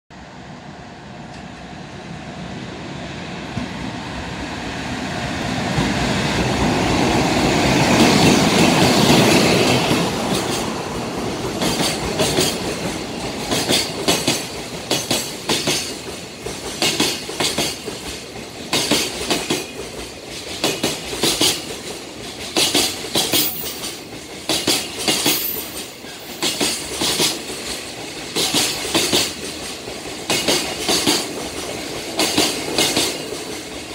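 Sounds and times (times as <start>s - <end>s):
freight train rumble: 0.1s - 33.9s
wheels clacking over rail joints: 7.5s - 33.9s.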